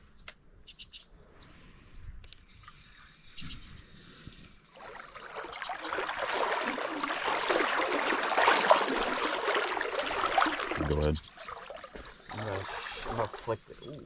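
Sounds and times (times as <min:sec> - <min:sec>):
creek water rushing over rocks: 0:04.8 - 0:13.4.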